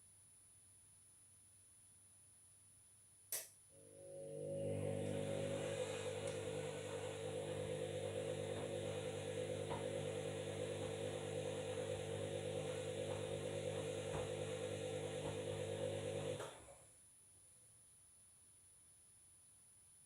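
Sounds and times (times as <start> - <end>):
washing machine running: 3.8 - 16.9.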